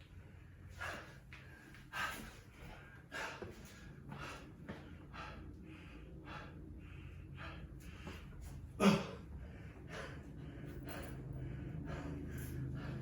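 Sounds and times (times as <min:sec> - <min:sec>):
person breathing hard: 0:00.1 - 0:13.0.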